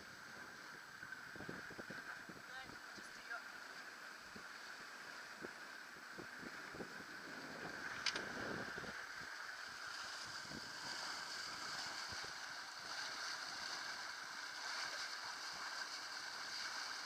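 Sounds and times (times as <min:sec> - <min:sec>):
water rushing along a boat hull: 0:00.0 - 0:17.0.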